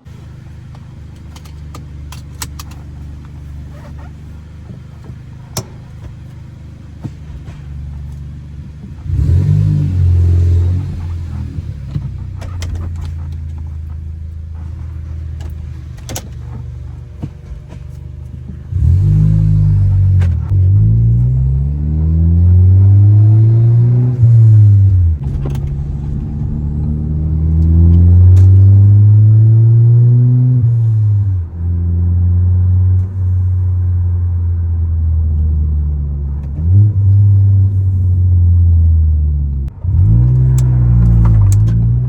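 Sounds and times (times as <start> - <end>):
car engine revving: 0.0 - 42.0.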